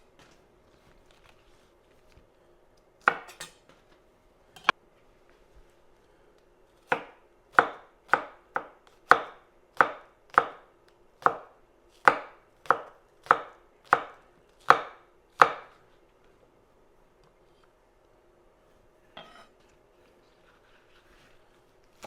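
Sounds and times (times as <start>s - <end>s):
knife chopping on cutting board: 3.0s - 3.6s, 6.9s - 10.6s, 11.2s - 15.8s.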